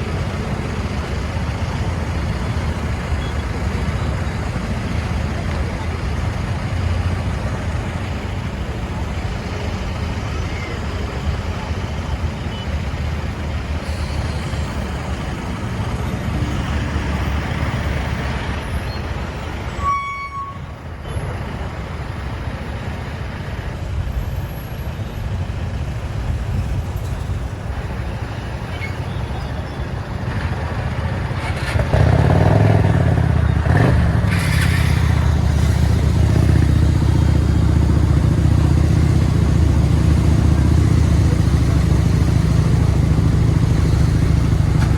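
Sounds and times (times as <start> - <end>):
road and traffic noise: 0.0 - 44.9
short horn beep: 19.7 - 20.8
motorcycle engine running: 30.7 - 44.9.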